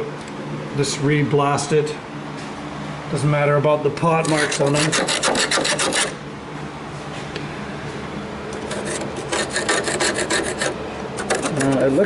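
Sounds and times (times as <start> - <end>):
scraping on rusty sheet steel: 4.2 - 6.2, 8.7 - 12.0.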